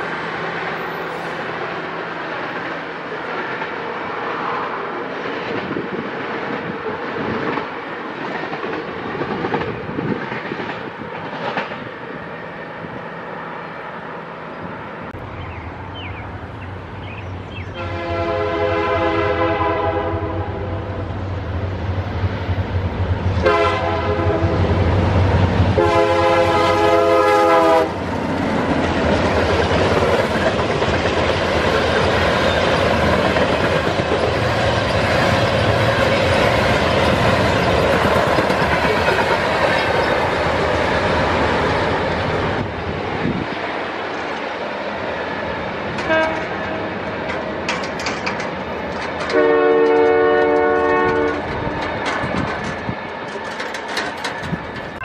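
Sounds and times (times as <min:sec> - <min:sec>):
diesel locomotive engine rumble: 0:00.0 - 0:55.0
train wheels clacking on rails: 0:05.2 - 0:13.0, 0:22.4 - 0:44.6, 0:45.8 - 0:55.0.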